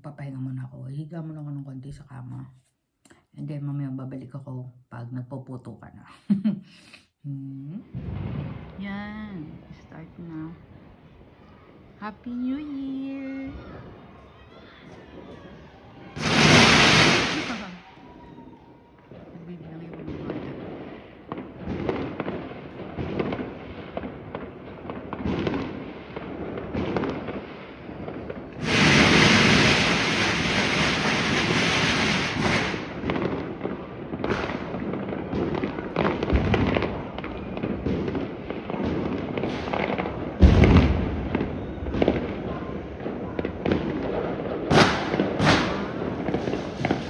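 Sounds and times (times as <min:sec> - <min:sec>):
fireworks bangs and pops: 0:07.9 - 0:09.7, 0:12.6 - 0:47.0
firecrackers crackling: 0:16.1 - 0:47.0.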